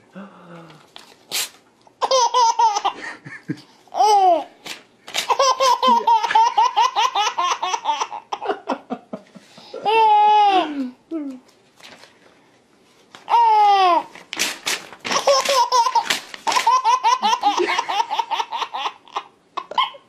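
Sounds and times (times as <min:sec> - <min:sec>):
paper tearing: 0:01.0 - 0:01.6, 0:14.0 - 0:16.9
baby belly-laughing: 0:02.0 - 0:03.0, 0:03.9 - 0:04.5, 0:05.2 - 0:08.7, 0:15.1 - 0:20.0.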